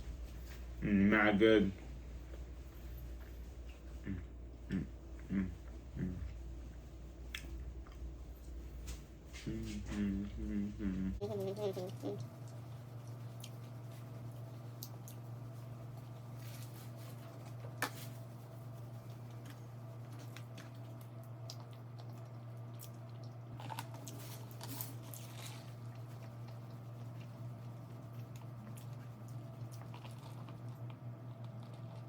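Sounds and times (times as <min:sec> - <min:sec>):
steady low hum: 0:00.0 - 0:32.0
person chewing food: 0:11.6 - 0:16.7, 0:19.0 - 0:32.0.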